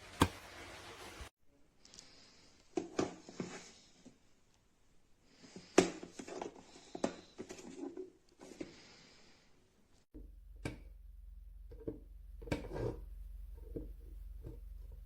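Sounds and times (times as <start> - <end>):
rustling: 0.0 - 2.5.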